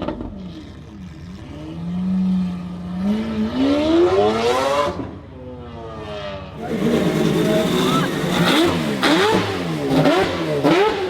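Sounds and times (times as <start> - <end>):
car engine revving: 6.5 - 11.0.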